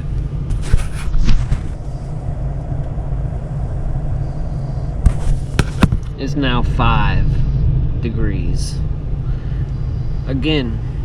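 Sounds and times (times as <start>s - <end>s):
car engine idling: 0.0s - 11.0s
knocks and rustles: 5.0s - 6.2s.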